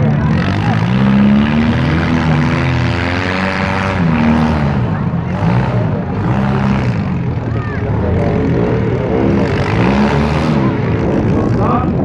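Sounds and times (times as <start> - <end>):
car engines revving hard: 0.0 - 12.0.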